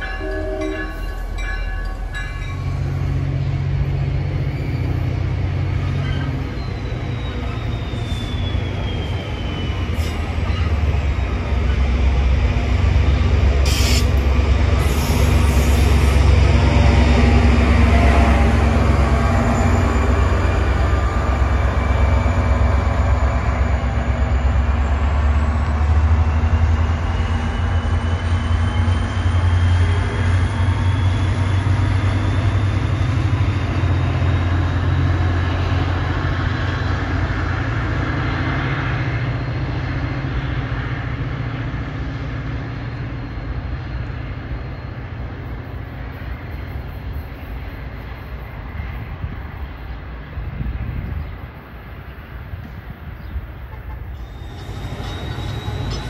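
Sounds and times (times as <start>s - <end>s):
diesel locomotive rumble: 0.0s - 56.0s
rail noise: 0.0s - 56.0s.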